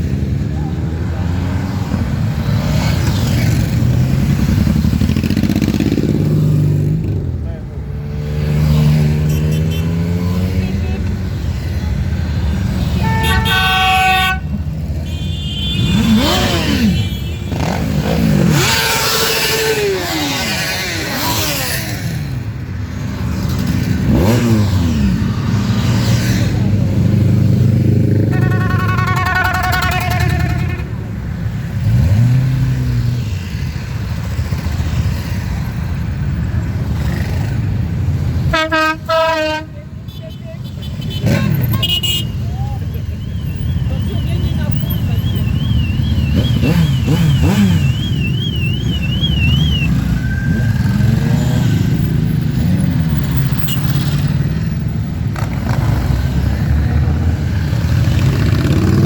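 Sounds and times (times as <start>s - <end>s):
motorcycle engines revving: 0.0s - 59.0s
vehicle horn blaring: 12.9s - 17.8s, 28.2s - 31.2s, 38.5s - 42.4s.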